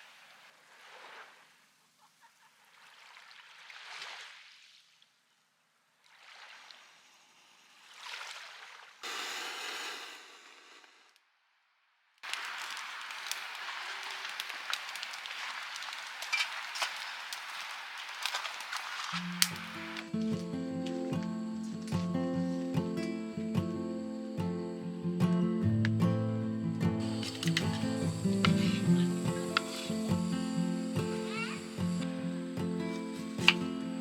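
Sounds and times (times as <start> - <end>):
steady hiss: 9.0 - 11.2, 12.2 - 25.4, 27.0 - 34.0
sea waves washing onto beach: 12.2 - 20.1, 27.0 - 34.0
crackles and clicks: 12.2 - 23.2, 26.9 - 34.0.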